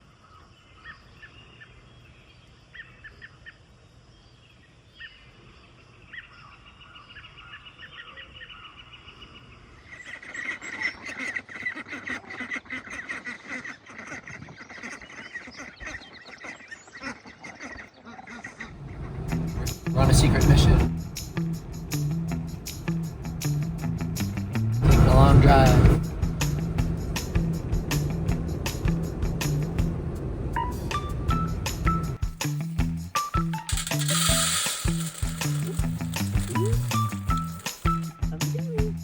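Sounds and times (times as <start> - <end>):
waterfowl calling: 10.0 - 18.7.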